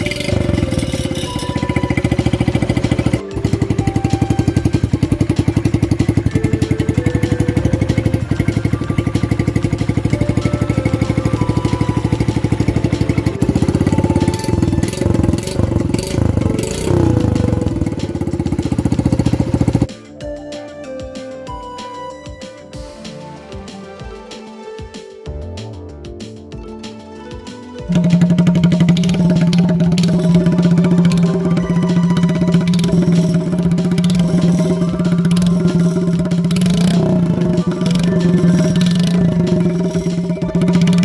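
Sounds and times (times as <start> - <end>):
motorcycle engine idling: 0.0 - 19.9, 27.9 - 41.0
throttle blips: 27.9 - 41.0.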